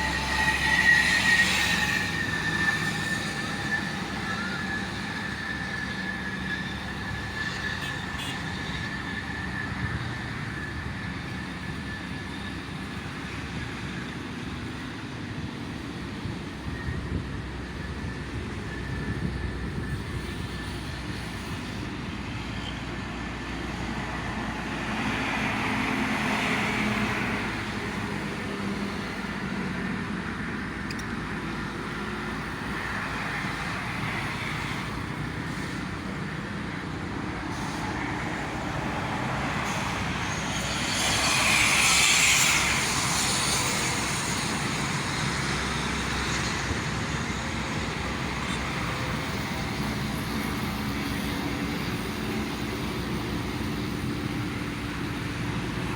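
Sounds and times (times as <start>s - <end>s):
traffic rushing past: 0.0s - 14.8s, 15.4s - 55.9s.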